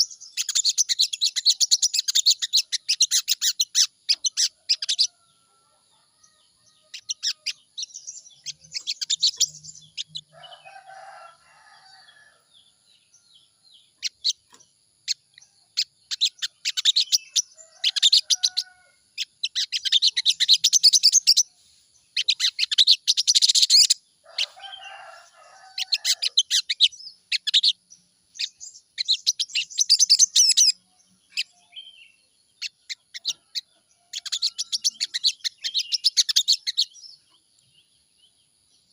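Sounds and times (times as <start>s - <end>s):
bird chattering high chirps: 0.0s - 5.1s, 6.8s - 10.7s, 14.0s - 21.5s, 22.1s - 37.3s.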